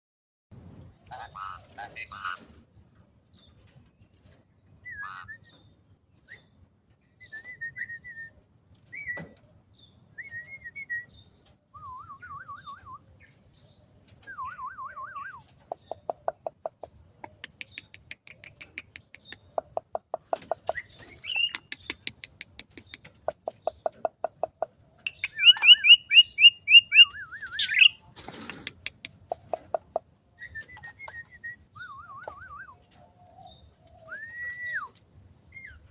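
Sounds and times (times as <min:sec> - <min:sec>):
starling singing: 0:17.4 - 0:28.1.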